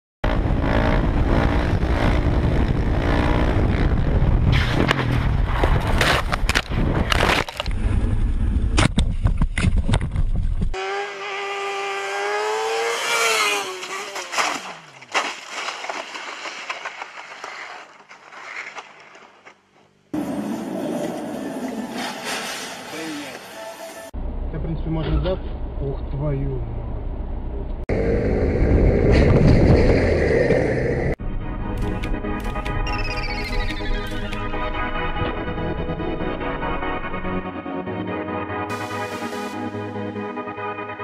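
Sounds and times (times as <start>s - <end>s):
motorcycle engines revving: 0.2s - 5.1s, 10.8s - 14.9s
wind and road noise: 0.2s - 23.5s, 24.2s - 36.0s.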